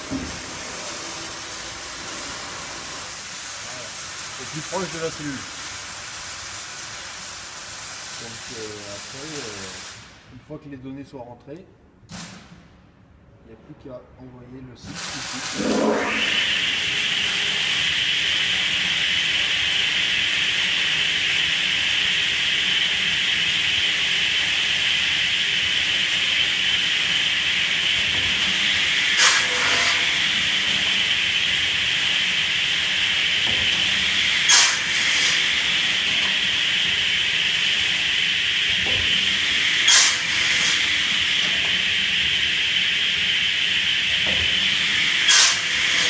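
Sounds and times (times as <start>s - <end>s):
machine high hiss: 15.0s - 46.0s.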